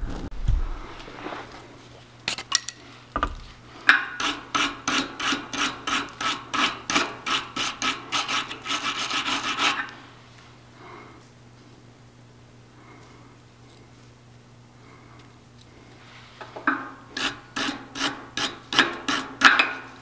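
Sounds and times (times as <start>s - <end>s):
wire brush scrubbing metal threads: 4.1s - 9.9s, 17.1s - 19.6s.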